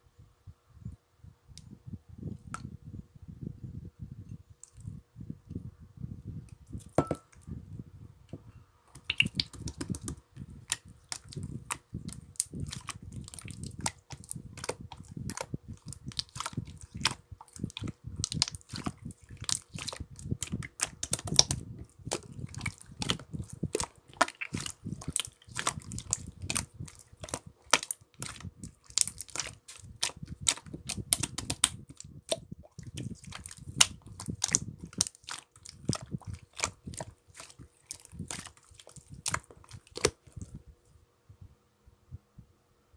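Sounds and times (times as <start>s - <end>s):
slime clicks and pops: 9.0s - 11.2s, 27.2s - 32.4s
slime squishing: 9.0s - 40.6s.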